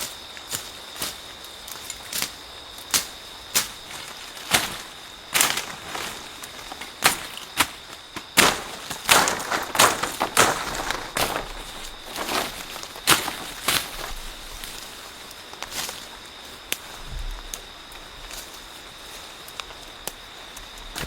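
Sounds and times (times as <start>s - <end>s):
sharp crunches and snaps: 1.7s - 16.0s.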